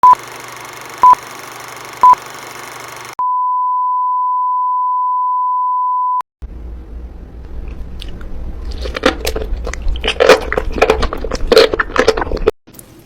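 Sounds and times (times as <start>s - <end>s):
electronic countdown beeps: 1.0s - 1.2s.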